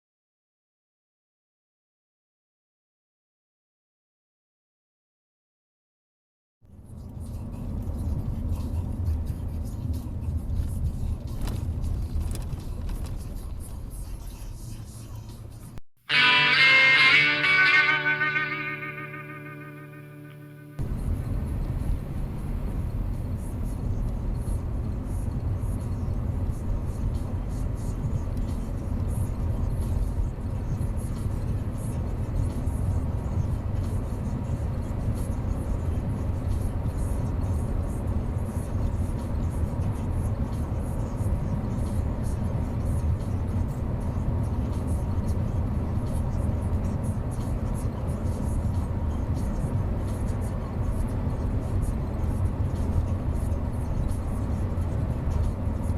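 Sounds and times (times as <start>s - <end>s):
car road and engine rumble: 6.7s - 15.7s, 20.8s - 55.9s.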